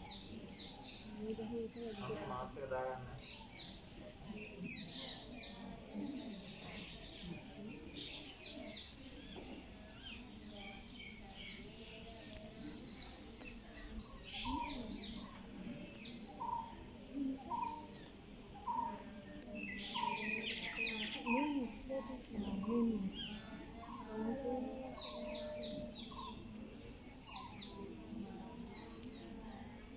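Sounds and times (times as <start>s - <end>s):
birds chirping and calling: 12.9s - 16.8s, 17.4s - 26.4s.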